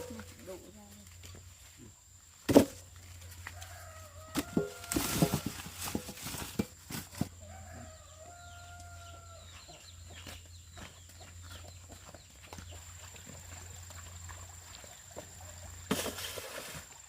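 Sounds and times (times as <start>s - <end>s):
rooster crowing: 3.4s - 5.4s, 7.4s - 9.6s.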